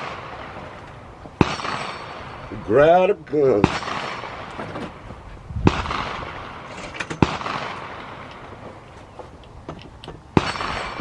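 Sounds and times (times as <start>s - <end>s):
rifle shots echoing: 0.0s - 0.8s, 1.4s - 4.6s, 5.6s - 8.6s, 10.3s - 11.0s.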